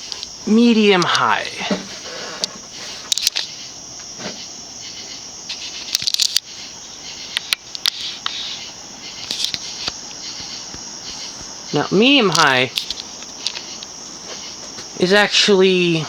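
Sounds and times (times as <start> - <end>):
ceiling fan hissing: 0.0 - 16.0
fan clicks: 7.3 - 8.4, 9.2 - 14.0.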